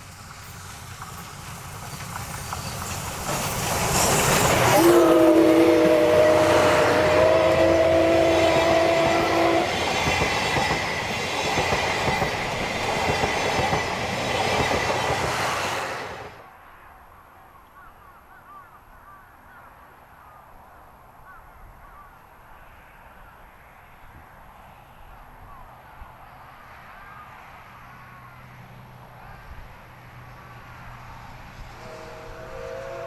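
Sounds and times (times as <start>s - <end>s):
passing train rumble and clatter: 0.0s - 16.9s, 22.3s - 33.0s
locomotive chime whistle: 4.0s - 9.9s, 31.7s - 33.0s.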